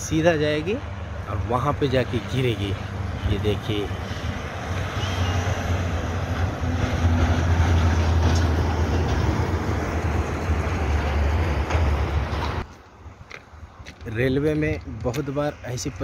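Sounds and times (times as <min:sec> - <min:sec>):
train rumbling on railway: 0:02.2 - 0:13.2.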